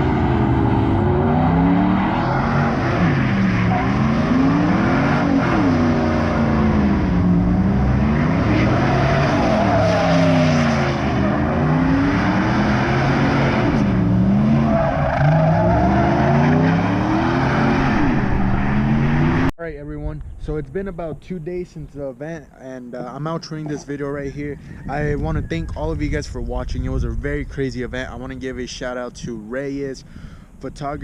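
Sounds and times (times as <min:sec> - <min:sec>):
car engine revving: 0:00.0 - 0:19.5.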